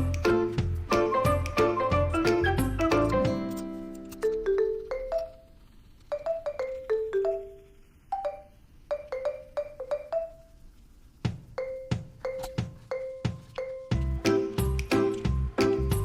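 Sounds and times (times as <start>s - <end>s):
low drum beat: 11.2s - 16.0s.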